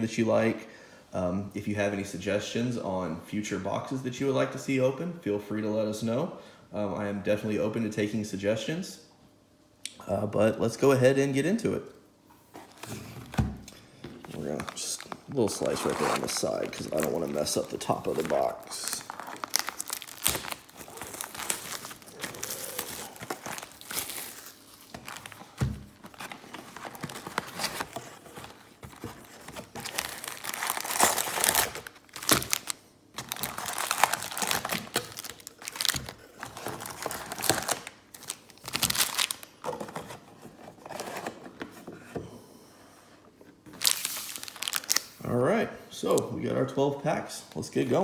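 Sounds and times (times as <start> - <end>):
plastic shrink-wrap crinkling and tearing: 14.4 - 39.6, 43.8 - 45.2.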